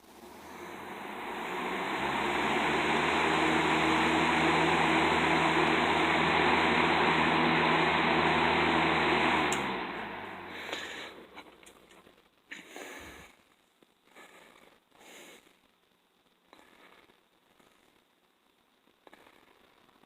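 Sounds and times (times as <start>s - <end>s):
low motor hum: 0.0s - 11.1s
box fan air rush: 0.0s - 11.4s.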